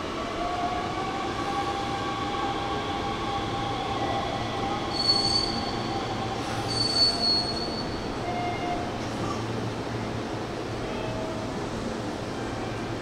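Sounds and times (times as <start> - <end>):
train wheels squealing: 4.8 - 8.8.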